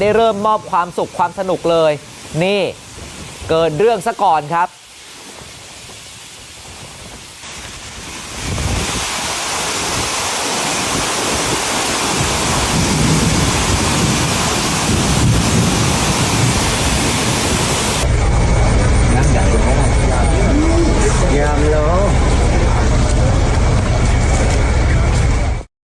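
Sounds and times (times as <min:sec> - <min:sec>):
heavy rain: 0:00.0 - 0:25.7
strong wind rumbling: 0:01.6 - 0:04.0, 0:04.9 - 0:25.7.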